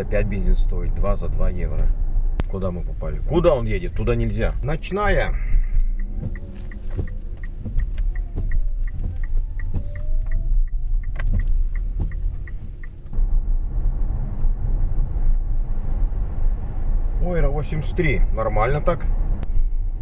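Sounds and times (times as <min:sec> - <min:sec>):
car road and tyre rumble: 0:00.0 - 0:20.0
small tick repeating: 0:05.6 - 0:13.2.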